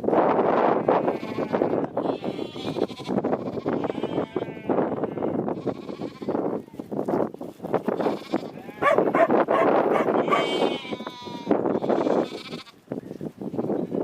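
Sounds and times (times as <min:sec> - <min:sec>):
sheep bleating: 0:00.7 - 0:06.8, 0:07.9 - 0:09.3, 0:10.0 - 0:12.8.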